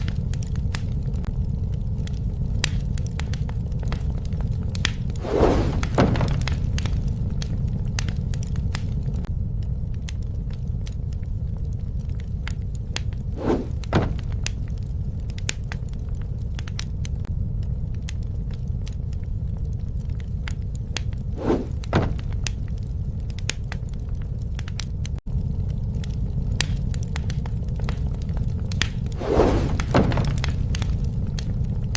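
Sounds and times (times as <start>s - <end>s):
campfire crackling and popping: 0.0s - 31.9s.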